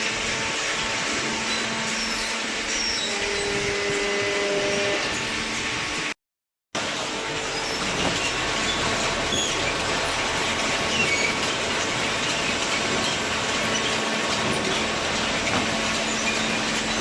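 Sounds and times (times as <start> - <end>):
paper baler running: 6.8 - 17.0
high squeaks: 7.4 - 9.9.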